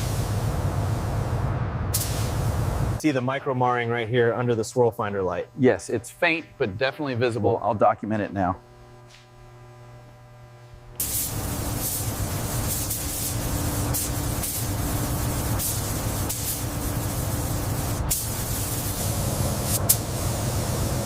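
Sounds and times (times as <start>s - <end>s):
hissing air spray: 0.0s - 1.3s, 1.9s - 2.9s, 11.0s - 21.0s
low hum: 0.0s - 7.7s.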